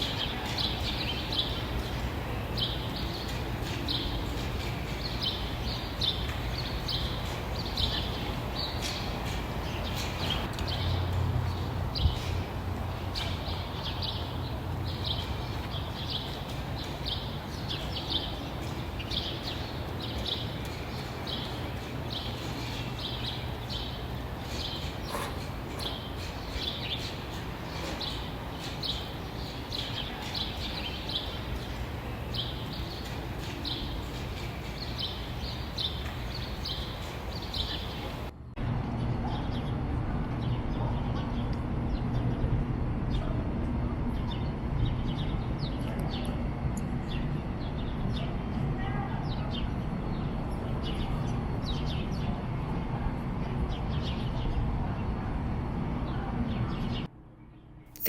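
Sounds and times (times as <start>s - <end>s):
birds chirping: 0.0s - 38.3s.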